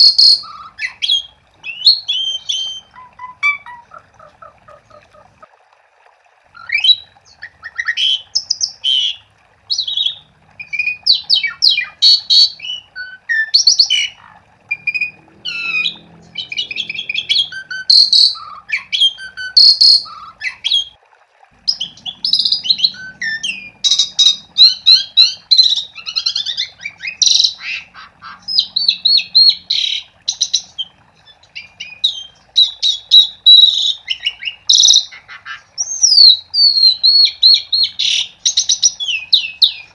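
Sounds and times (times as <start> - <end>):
starling singing: 0.0 - 5.3, 6.6 - 20.9, 21.6 - 39.9.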